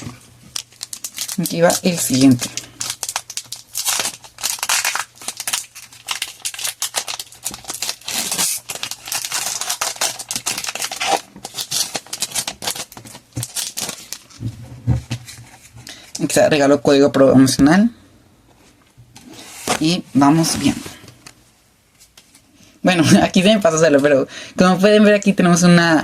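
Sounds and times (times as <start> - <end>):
foil wrapper crinkling: 0.0 - 14.4.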